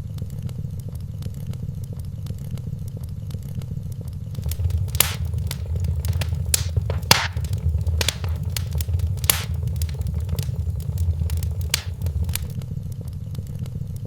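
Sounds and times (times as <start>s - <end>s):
wood fire crackling: 4.4s - 12.6s.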